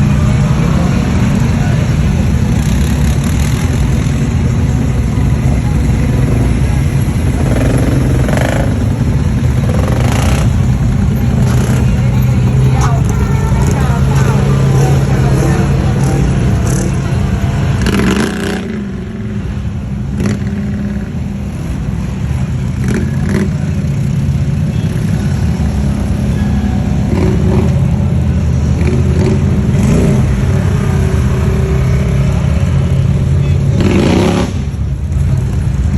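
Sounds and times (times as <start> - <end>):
atv engine revving: 0.0 - 35.9.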